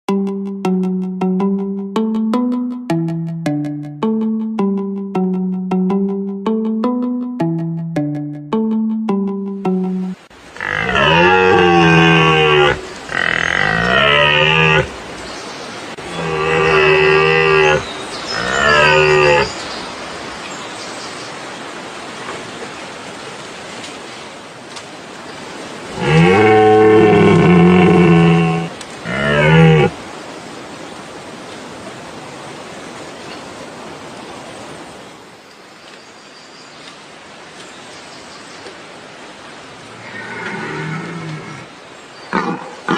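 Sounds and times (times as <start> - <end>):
deer calling: 10.6 - 15.0, 16.0 - 19.5, 26.0 - 30.0.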